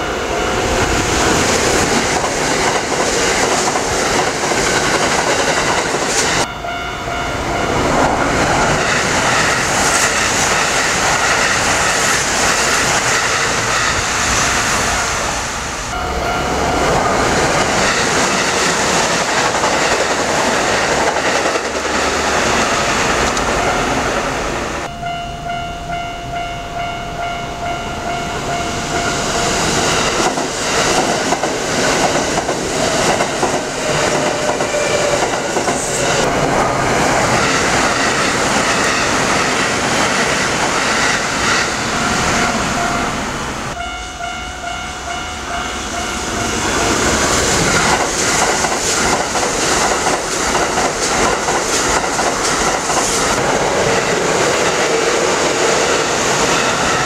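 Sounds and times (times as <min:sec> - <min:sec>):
electric trains running past: 0:00.0 - 0:57.0
multi-pitch ringing tone: 0:06.5 - 0:07.8, 0:24.8 - 0:29.6, 0:43.7 - 0:46.9.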